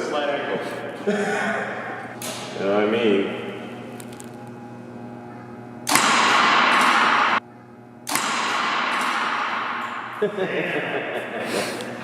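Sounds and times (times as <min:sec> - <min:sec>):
arrow hitting metal: 0:05.9 - 0:07.4, 0:08.1 - 0:10.2.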